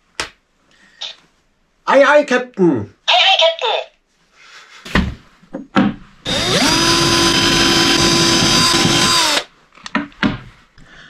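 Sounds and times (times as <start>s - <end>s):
electric drill motor spinning: 6.3s - 9.5s.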